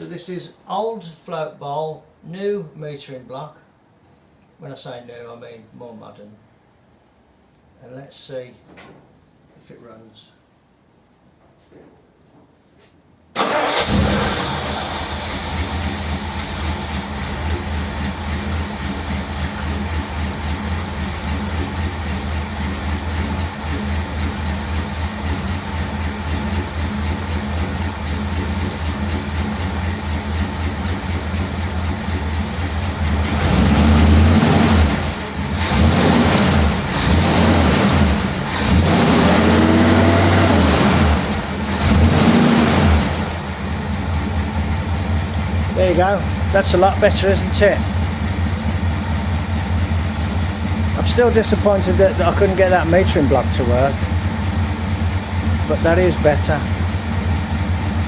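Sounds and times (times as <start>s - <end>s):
car engine revving: 13.4s - 58.0s
car engine starting and running: 13.4s - 58.0s.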